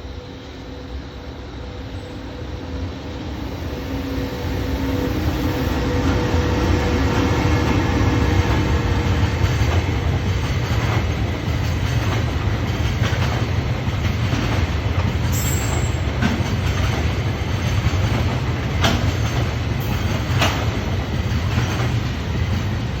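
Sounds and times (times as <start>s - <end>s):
freight train wheels rumbling: 0.0s - 23.0s
wheels clicking over rail joints: 7.2s - 22.8s.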